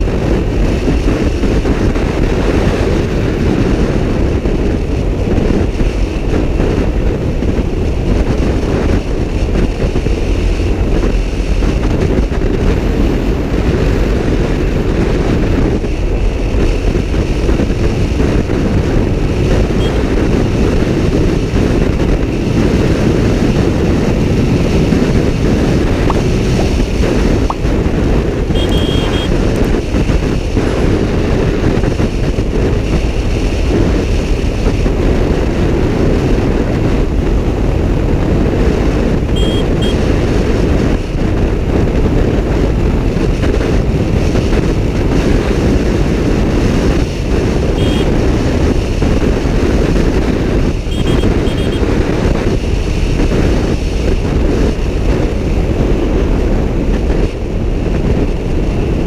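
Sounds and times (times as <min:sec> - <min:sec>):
motorcycle engine at speed: 0:00.0 - 0:59.0
wind rush on microphone: 0:00.0 - 0:59.0
short high beeps: 0:19.8 - 0:20.0, 0:28.6 - 0:29.4, 0:39.4 - 0:40.0, 0:47.8 - 0:48.2, 0:50.9 - 0:51.8.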